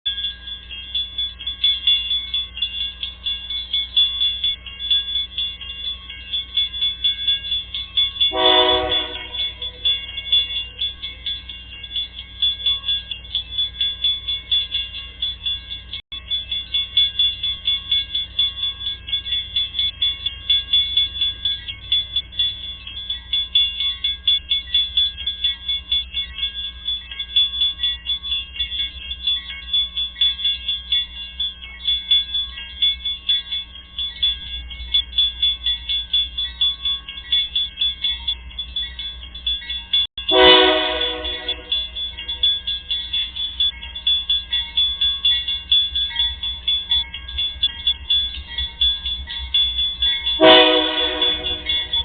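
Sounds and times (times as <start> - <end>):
level-crossing warning bell: 0.1 - 52.0
train horn blast: 8.3 - 9.7, 40.3 - 41.8, 50.4 - 51.8.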